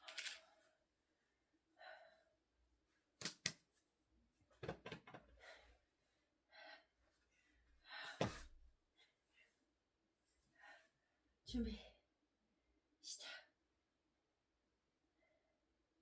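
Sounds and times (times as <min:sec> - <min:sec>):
woman breathing: 0:07.8 - 0:09.6.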